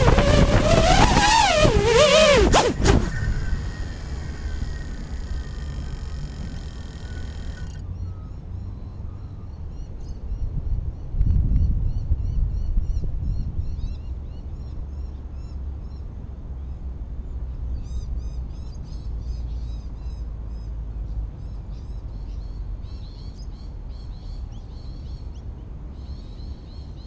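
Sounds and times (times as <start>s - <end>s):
wind rumble on microphone: 0.0s - 7.8s, 10.2s - 14.9s
small birds chirping: 3.1s - 7.8s.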